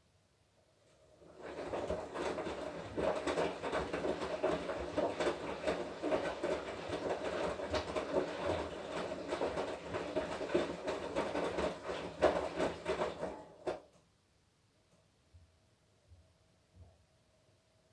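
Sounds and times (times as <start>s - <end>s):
washing machine drum churning: 1.2s - 13.9s.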